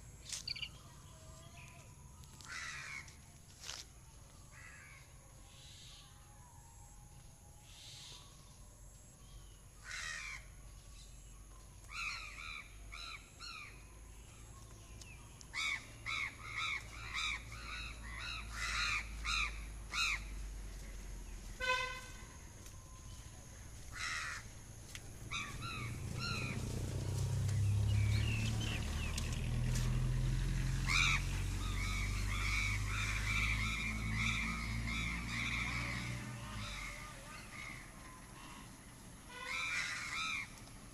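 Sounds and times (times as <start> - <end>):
crows cawing: 2.4 - 3.1, 9.8 - 10.5, 15.6 - 20.2, 23.9 - 24.5, 39.4 - 40.6
horn-like tone: 21.6 - 22.4.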